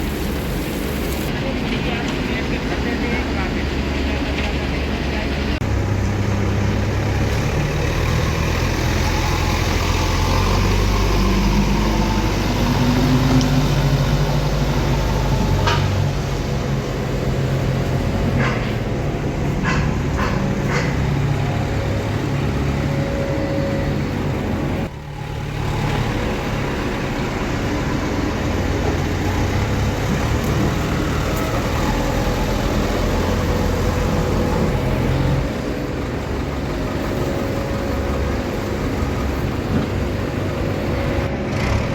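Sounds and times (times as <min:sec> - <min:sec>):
heavy diesel engine running: 0:00.0 - 0:41.9.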